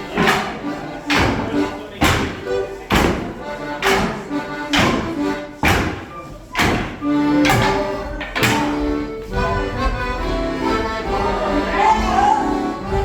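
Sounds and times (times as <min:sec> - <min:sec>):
dancers' sticks knocking: 0:00.0 - 0:13.0
live folk dance tune: 0:00.0 - 0:13.0.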